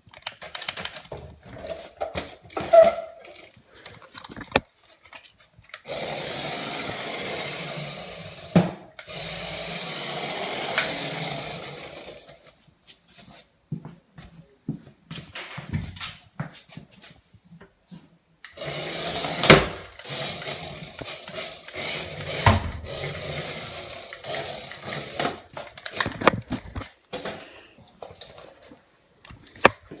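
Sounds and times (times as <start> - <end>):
toy car motor whirring: 5.8 - 12.5, 18.5 - 26.3.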